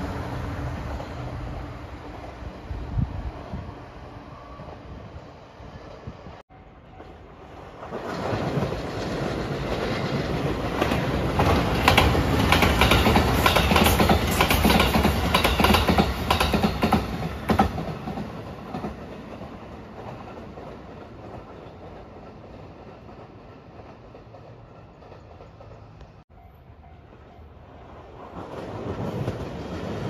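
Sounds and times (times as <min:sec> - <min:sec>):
train passing at speed: 0:00.0 - 0:30.0
wheels clacking over rail joints: 0:07.0 - 0:26.2.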